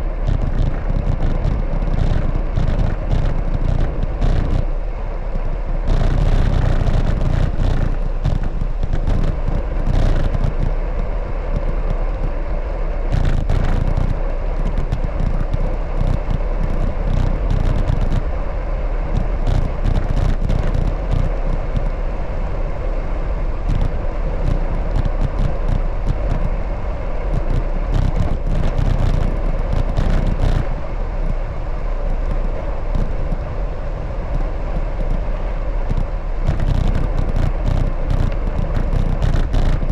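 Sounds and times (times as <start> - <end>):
low rumble: 0.0 - 39.9
bicycle clicks and rattles: 0.2 - 4.7, 5.9 - 10.8, 13.1 - 18.3, 23.6 - 39.9.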